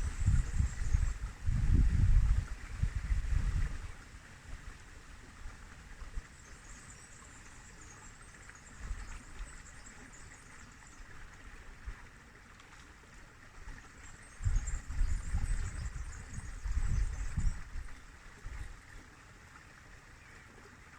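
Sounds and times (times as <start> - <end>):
river water flowing: 2.0 - 20.9.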